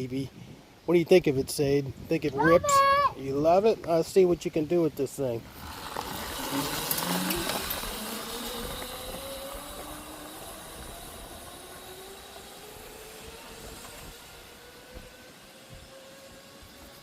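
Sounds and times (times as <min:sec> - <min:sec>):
electric motor whining: 0:05.5 - 0:17.0.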